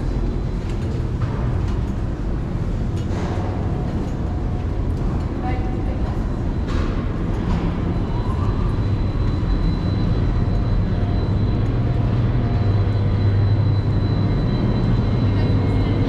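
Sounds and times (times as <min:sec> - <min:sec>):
low machinery hum: 0:00.0 - 0:16.0
faint high whine: 0:07.9 - 0:16.0.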